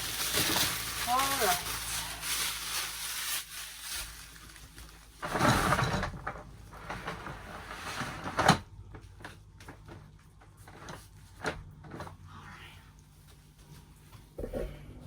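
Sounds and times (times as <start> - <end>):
plastic scraping rustle: 0.0 - 8.6.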